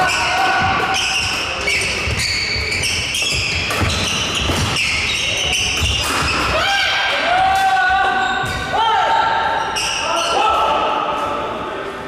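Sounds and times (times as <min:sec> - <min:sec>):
shoes squeaking on court floor: 0:00.0 - 0:06.6, 0:08.0 - 0:08.7.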